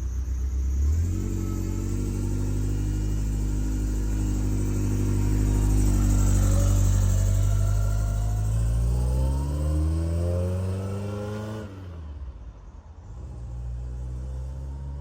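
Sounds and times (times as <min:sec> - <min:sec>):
sports car engine revving: 0:00.7 - 0:12.0.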